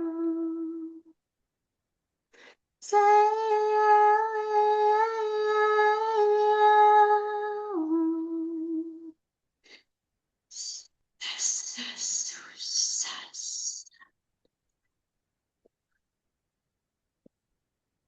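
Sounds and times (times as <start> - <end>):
person humming: 0.0 - 1.1.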